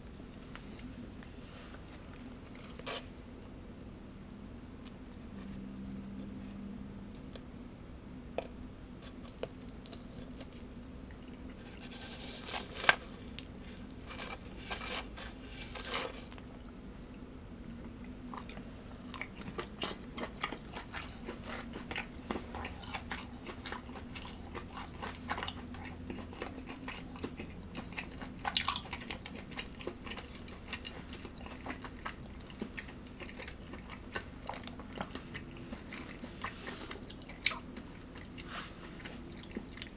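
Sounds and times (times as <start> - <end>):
person chewing crunchy food: 8.4 - 16.8, 18.2 - 39.9.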